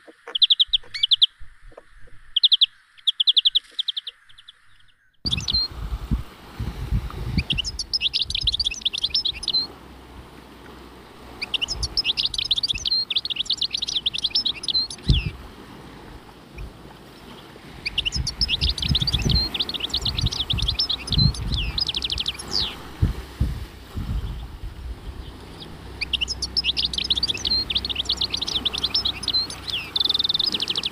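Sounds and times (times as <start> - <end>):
songbird chirping: 0.0 - 5.9, 6.5 - 30.9
low thumps and rumbling: 5.3 - 8.6, 15.0 - 16.8, 18.0 - 29.6.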